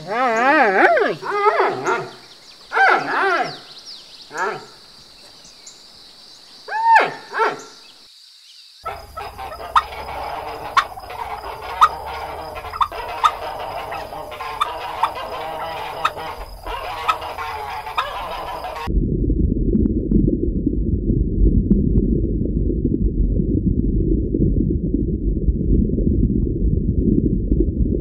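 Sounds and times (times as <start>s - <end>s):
background birds: 0.0s - 18.9s
flock with sharp repeated calls: 0.0s - 18.9s
poultry calling: 8.8s - 18.9s.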